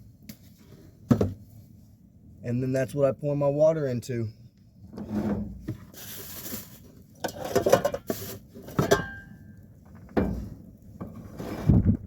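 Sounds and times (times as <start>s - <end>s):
wind buffeting microphone: 11.5s - 12.0s.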